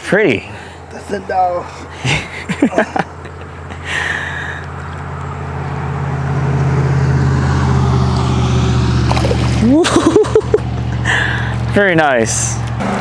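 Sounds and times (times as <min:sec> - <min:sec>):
boat motor running: 0:03.2 - 0:13.0.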